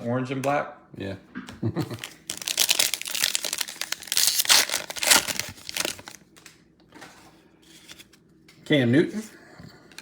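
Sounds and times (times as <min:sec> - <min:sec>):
foil wrapper crinkling and tearing: 0:01.9 - 0:06.3.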